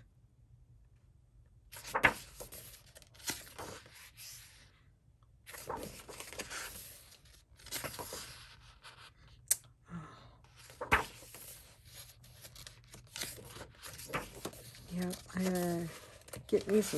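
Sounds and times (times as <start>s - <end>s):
paper pages turning: 1.7s - 4.6s, 5.5s - 9.4s, 10.5s - 16.9s.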